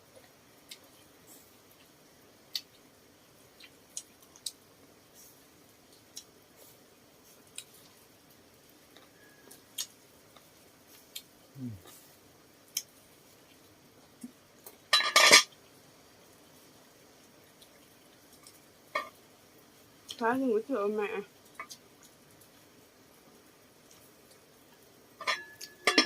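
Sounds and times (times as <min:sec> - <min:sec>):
dishes clattering: 0:14.9 - 0:15.5, 0:25.2 - 0:26.0
utensils clinking on dishes: 0:14.9 - 0:15.5, 0:25.2 - 0:26.0.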